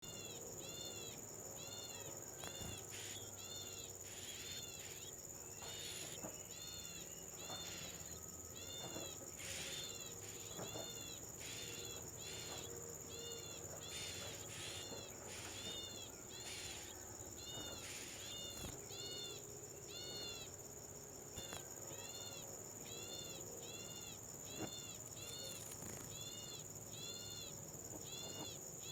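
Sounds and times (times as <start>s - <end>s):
high-pitched insect hum: 0.0s - 28.9s.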